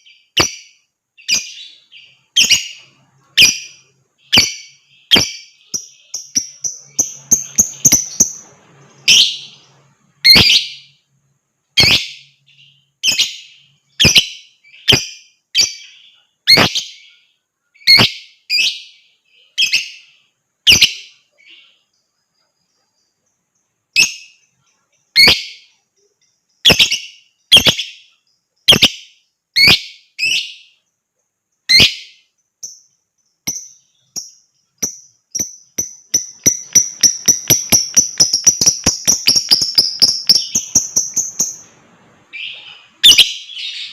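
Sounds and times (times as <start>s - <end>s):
lovebird shrieking chirps: 42.3s - 43.9s.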